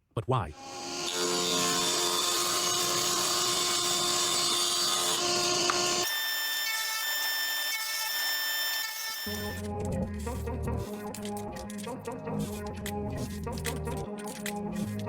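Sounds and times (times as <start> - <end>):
power tool running on wood: 0.6 - 9.6.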